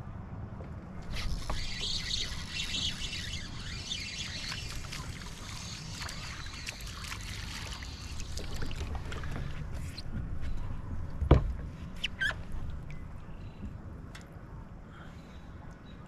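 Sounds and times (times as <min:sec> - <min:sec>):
water trickling and splashing: 0:01.1 - 0:10.7.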